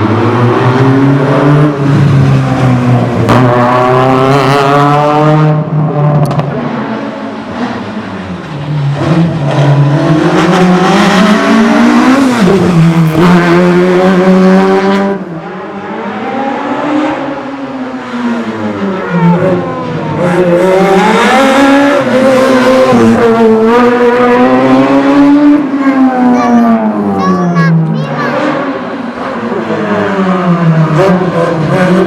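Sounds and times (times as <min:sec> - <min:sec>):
racing car engine revving: 0:00.0 - 0:27.2, 0:27.8 - 0:32.0.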